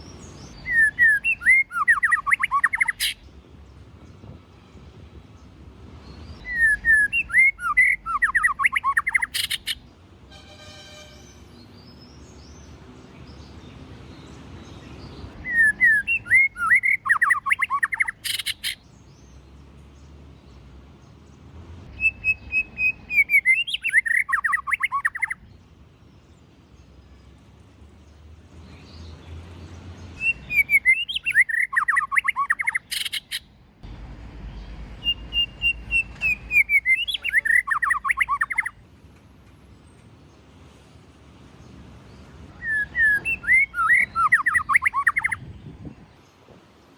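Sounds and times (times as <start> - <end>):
bird singing whistled phrases: 0.6 - 3.2, 6.4 - 9.8, 15.4 - 18.8, 21.9 - 25.4, 30.2 - 33.4, 35.0 - 38.8, 42.6 - 45.4.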